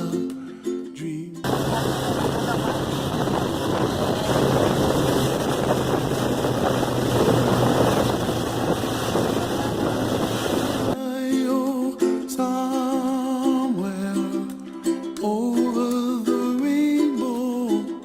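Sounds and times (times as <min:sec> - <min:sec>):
ukulele music: 0:00.0 - 0:18.0
wind buffeting microphone: 0:01.4 - 0:11.0
motorcycle engine drone: 0:01.5 - 0:11.0.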